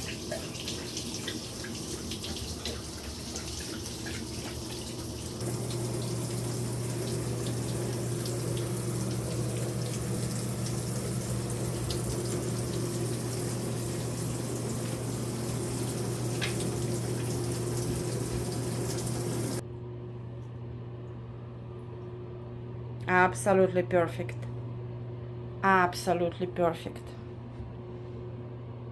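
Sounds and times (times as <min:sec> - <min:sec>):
tap water running: 0:00.0 - 0:19.6
low steady hum: 0:00.0 - 0:28.9.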